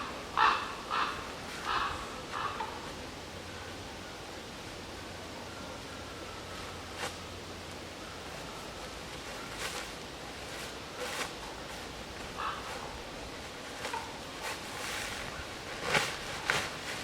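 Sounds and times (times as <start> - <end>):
background hiss: 0.0 - 17.0
rustling crunches: 8.2 - 17.0.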